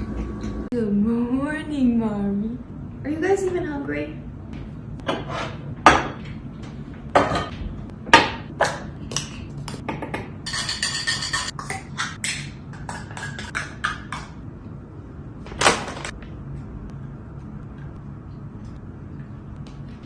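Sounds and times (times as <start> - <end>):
dishes and utensils clattering: 7.2 - 7.6, 9.9 - 14.3.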